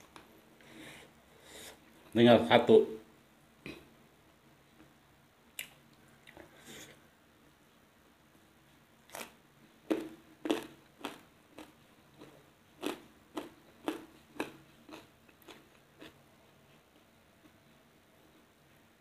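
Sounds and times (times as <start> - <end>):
crisp chewing crunches: 9.1 - 16.2.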